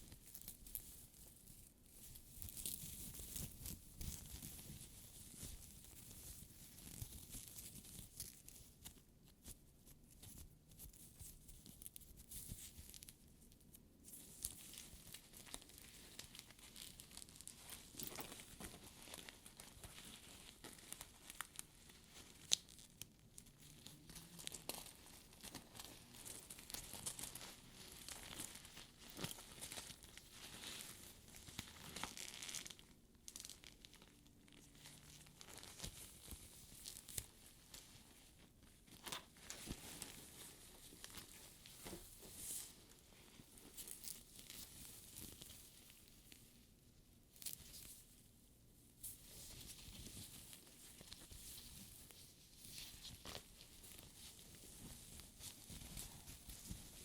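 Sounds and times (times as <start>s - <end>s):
hands rustling fabric lining: 14.0s - 46.6s, 47.2s - 57.0s.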